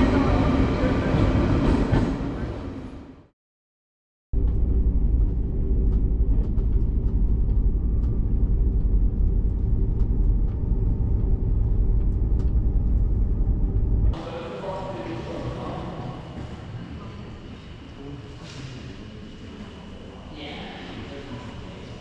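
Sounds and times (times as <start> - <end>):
vehicle rumbling in motion: 4.4 - 14.4.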